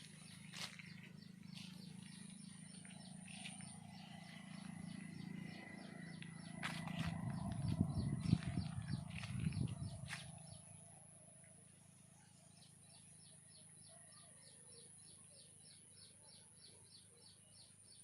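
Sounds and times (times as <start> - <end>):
low steady hum: 0.0 - 13.3.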